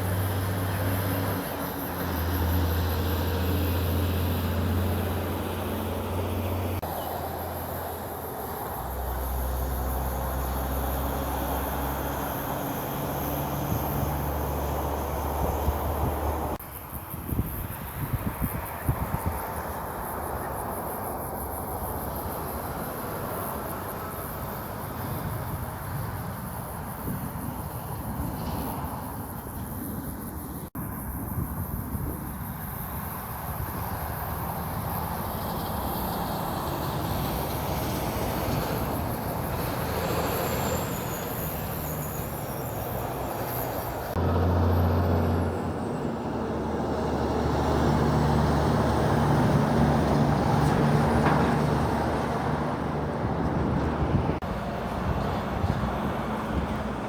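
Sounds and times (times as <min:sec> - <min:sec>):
truck engine humming: 0:00.0 - 0:16.6, 0:34.2 - 0:57.0
road traffic passing: 0:00.0 - 0:57.0.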